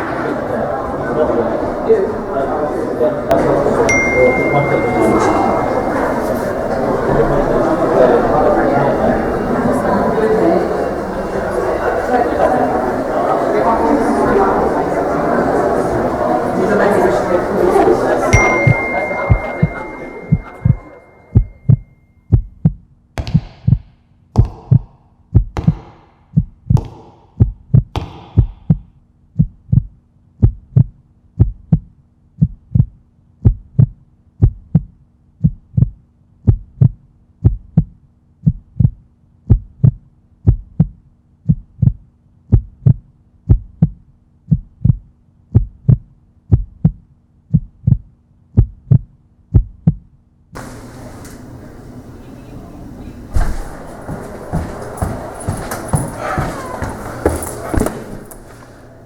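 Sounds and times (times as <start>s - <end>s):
heartbeat-like low thumps: 21.4s - 22.8s, 27.4s - 50.1s
faint low hum: 50.6s - 59.0s.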